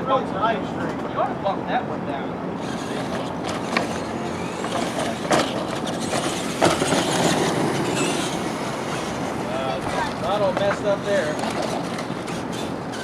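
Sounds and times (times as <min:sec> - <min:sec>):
rc trucks rumbling: 0:00.4 - 0:13.0.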